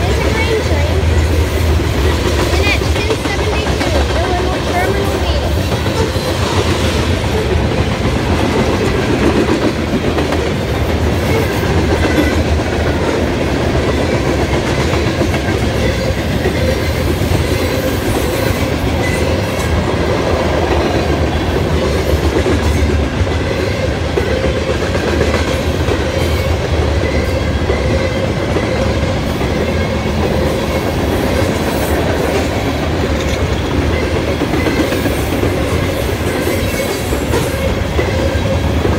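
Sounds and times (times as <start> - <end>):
freight train wheels clacking: 0.0 - 38.9.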